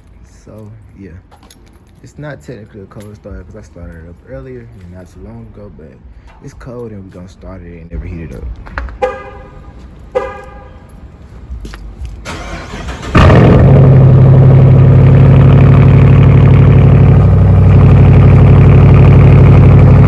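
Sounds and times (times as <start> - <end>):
car engine starting up: 12.1 - 20.0
loud engine idle: 13.2 - 20.0.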